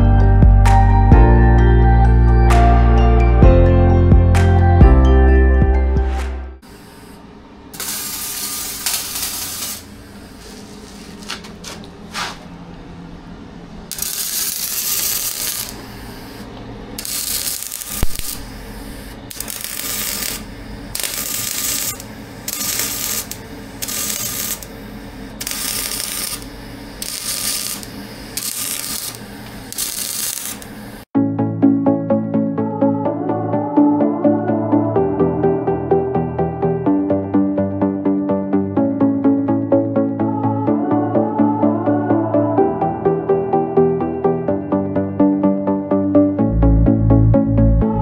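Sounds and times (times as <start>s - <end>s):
hand tool rasping strokes: 21.0s - 24.7s.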